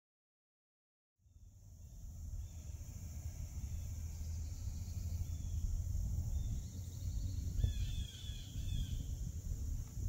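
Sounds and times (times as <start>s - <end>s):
bird chirping: 2.4s - 9.2s.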